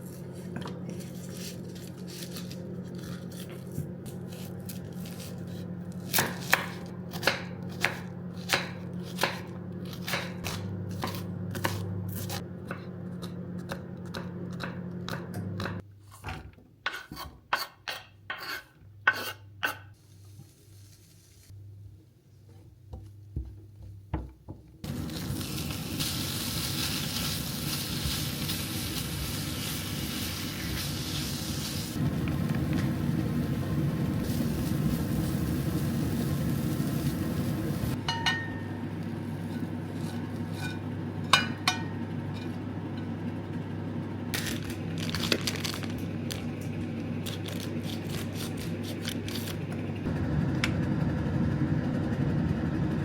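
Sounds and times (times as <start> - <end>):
low hum: 24.8 - 53.0
food sizzling in a pan: 24.9 - 38.2
utensils clinking on dishes: 38.0 - 38.8, 40.5 - 42.6.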